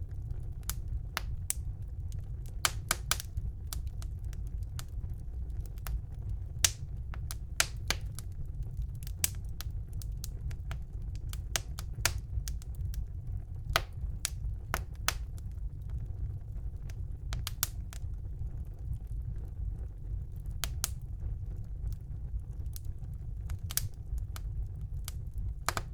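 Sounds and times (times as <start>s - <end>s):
low rumble of burning: 0.0s - 25.9s
wood fire crackling and popping: 0.0s - 25.9s.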